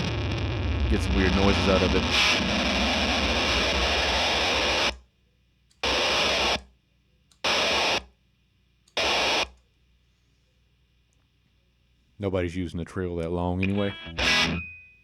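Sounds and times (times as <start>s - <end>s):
guitar amp feedback noise: 0.0s - 5.0s, 5.8s - 6.6s, 9.0s - 9.5s, 13.6s - 14.8s.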